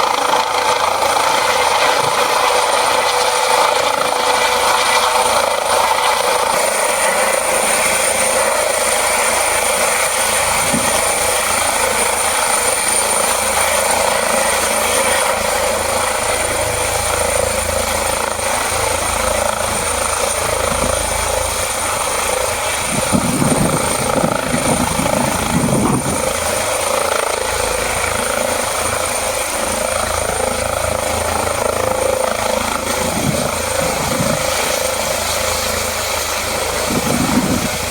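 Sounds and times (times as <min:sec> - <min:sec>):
helicopter whirring: 0:00.0 - 0:37.9.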